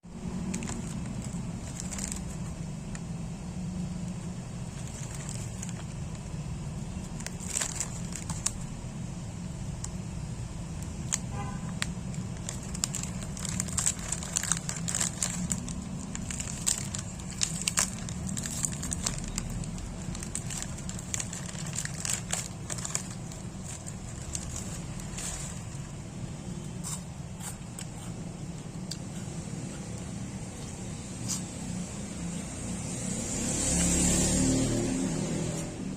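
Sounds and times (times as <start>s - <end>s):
steady low hum: 0.0s - 33.3s
plastic wrapper crinkling: 0.1s - 28.0s.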